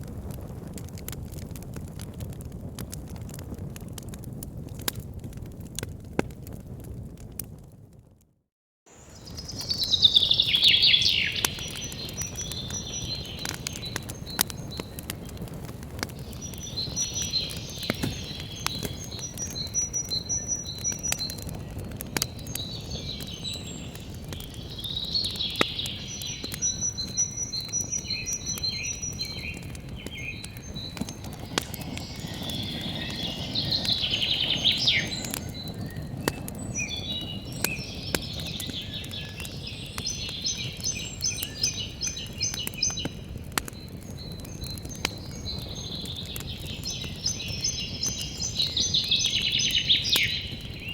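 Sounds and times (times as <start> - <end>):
campfire crackling and popping: 0.0 - 8.3, 8.9 - 50.9
small birds chirping: 9.0 - 50.9
rising whistle: 30.3 - 36.1.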